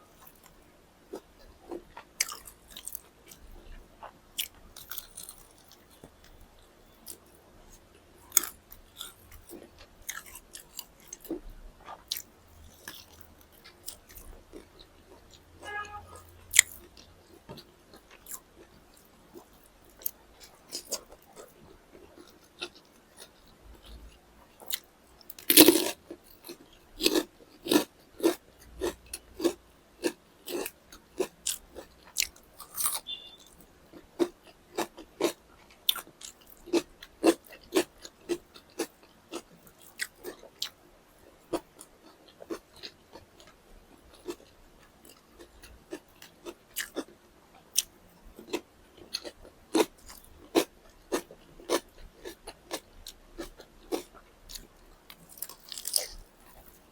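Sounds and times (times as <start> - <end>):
crunchy bites: 24.7 - 33.6, 47.8 - 56.9.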